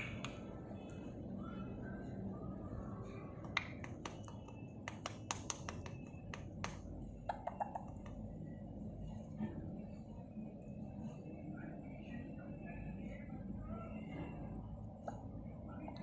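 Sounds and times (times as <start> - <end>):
sharp clicks and taps: 3.4 - 8.2.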